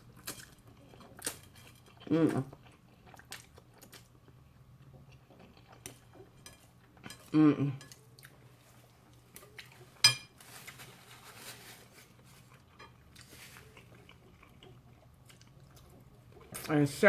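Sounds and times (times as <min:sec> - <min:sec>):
faint chewing: 0:00.0 - 0:16.8.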